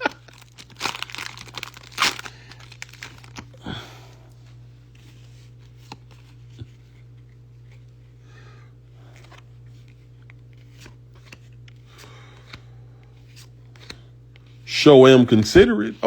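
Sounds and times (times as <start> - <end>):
foil wrapper crinkling and tearing: 0.0 - 3.6.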